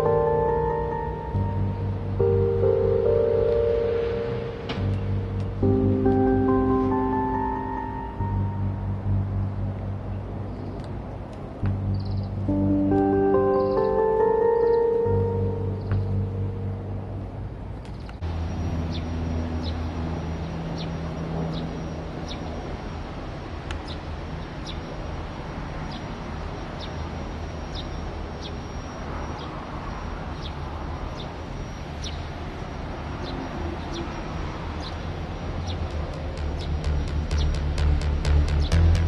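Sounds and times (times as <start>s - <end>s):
aircraft drone overhead: 0.0s - 39.0s.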